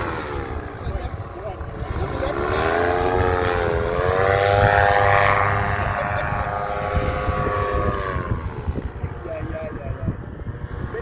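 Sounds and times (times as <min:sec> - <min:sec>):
paramotor engine droning: 0:00.0 - 0:11.0.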